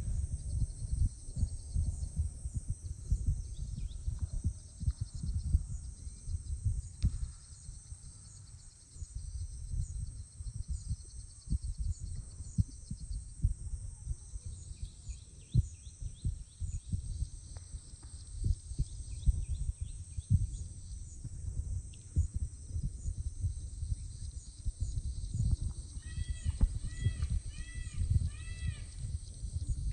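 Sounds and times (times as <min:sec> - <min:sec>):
wind buffeting microphone: 0:00.0 - 0:29.9
faint bird chirps: 0:25.4 - 0:29.9.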